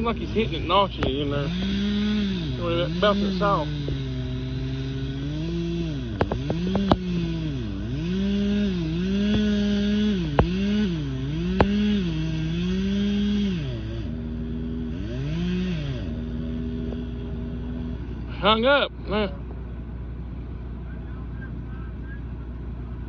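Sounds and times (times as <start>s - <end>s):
chainsaw cutting wood: 0.0s - 18.7s
sharp knocks: 6.0s - 7.2s, 9.0s - 10.8s, 11.4s - 12.0s.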